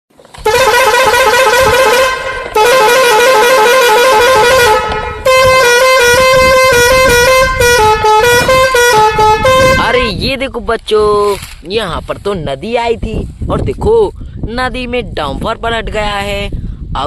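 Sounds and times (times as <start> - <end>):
horn-like electronic tune: 0.4 - 10.1.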